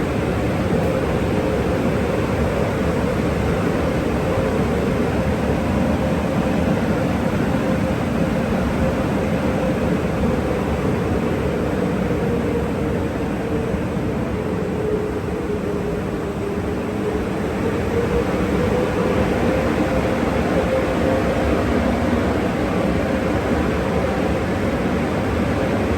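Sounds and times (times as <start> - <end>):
drying blowers rushing air: 0.0 - 11.5.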